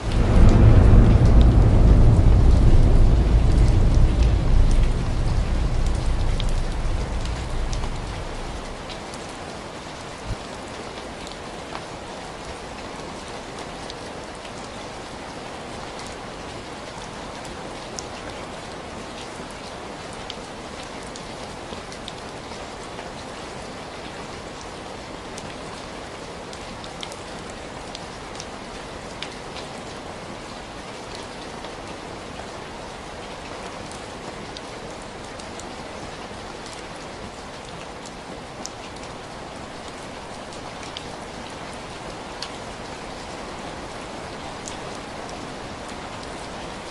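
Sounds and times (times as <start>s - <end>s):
soft low thump: 0.0s - 8.9s
low thunder rumble: 0.0s - 9.2s
raindrop ticks: 0.0s - 9.3s
steady rainfall: 0.0s - 46.9s.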